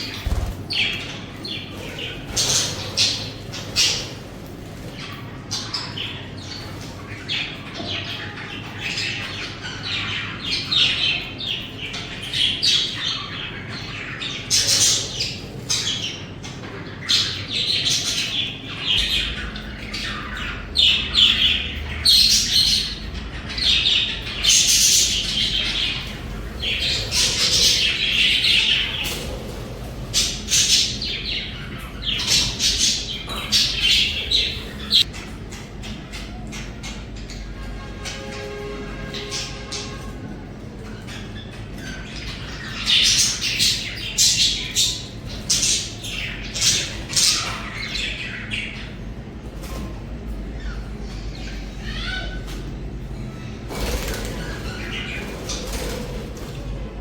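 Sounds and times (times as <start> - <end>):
budgies chattering and chirping: 0.0 - 57.0
low steady hum: 16.7 - 42.9.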